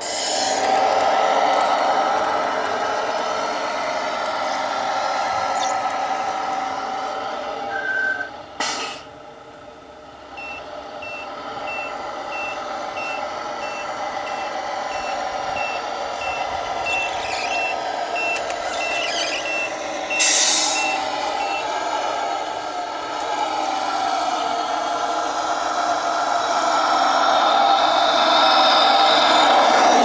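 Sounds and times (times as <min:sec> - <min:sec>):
air hiss: 0:00.0 - 0:00.8, 0:08.6 - 0:09.1, 0:20.2 - 0:20.9
toy truck motor whine: 0:00.0 - 0:06.8, 0:10.4 - 0:22.6
reversing warning beeps: 0:10.4 - 0:21.7.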